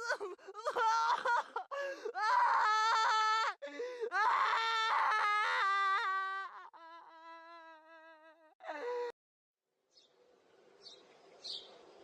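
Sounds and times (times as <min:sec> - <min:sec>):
person wailing and screaming: 0:00.0 - 0:09.2.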